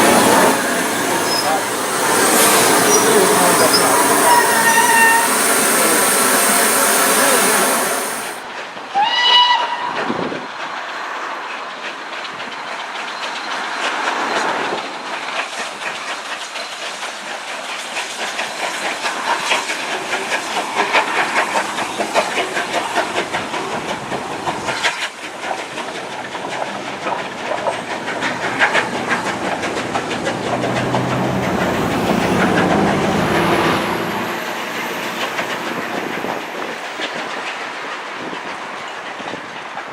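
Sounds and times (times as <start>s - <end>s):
loud rushing noise: 0.0s - 8.4s, 30.4s - 36.6s
train wheels clicking over rail joints: 0.0s - 8.4s, 10.0s - 39.9s
train whistle: 0.0s - 8.4s, 9.0s - 10.1s.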